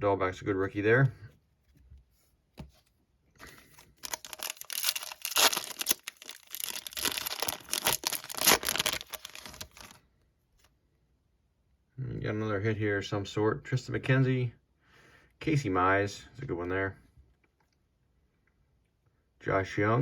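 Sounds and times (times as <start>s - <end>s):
foil wrapper tearing and crinkling: 3.7s - 10.0s.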